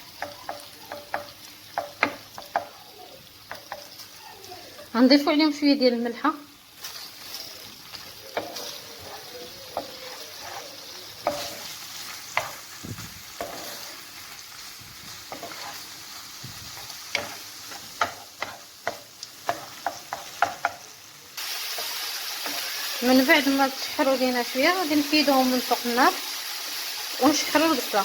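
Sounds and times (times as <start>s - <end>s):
utensil stirring and tapping pan: 0.0s - 4.2s, 6.8s - 21.0s
seafood sizzling in oil: 0.0s - 28.0s.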